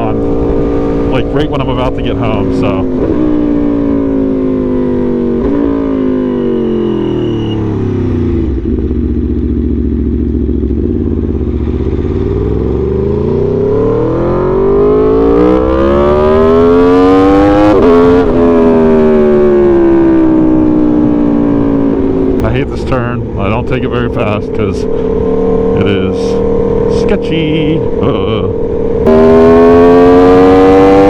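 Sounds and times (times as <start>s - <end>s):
motorcycle engine: 0.0s - 31.0s.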